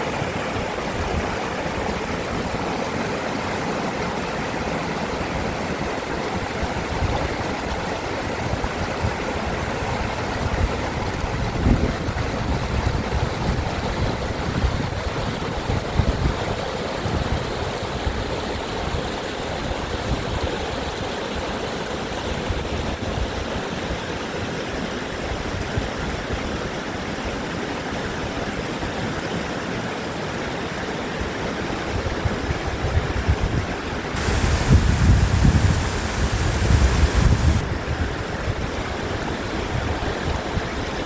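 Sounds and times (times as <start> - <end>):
stream rushing over rocks: 0.0 - 11.2, 34.1 - 37.7.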